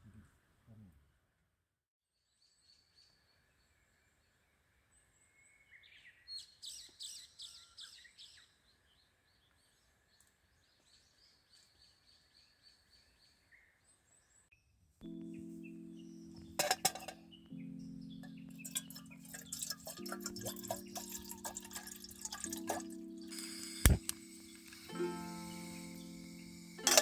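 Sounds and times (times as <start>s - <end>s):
background hiss: 22.7s - 27.0s.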